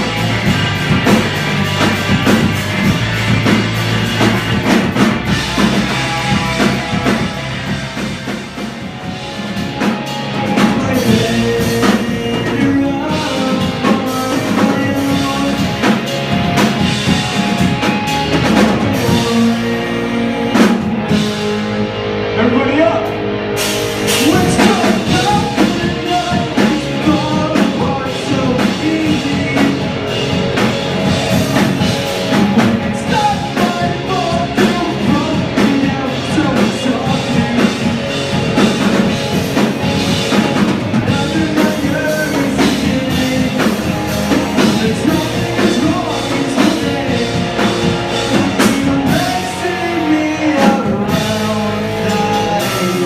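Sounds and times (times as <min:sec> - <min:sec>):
bass guitar: 0:00.0 - 0:53.0
drum kit: 0:00.0 - 0:53.0
electric guitar: 0:00.0 - 0:53.0
person singing: 0:09.7 - 0:16.6, 0:17.5 - 0:23.2, 0:24.1 - 0:53.0.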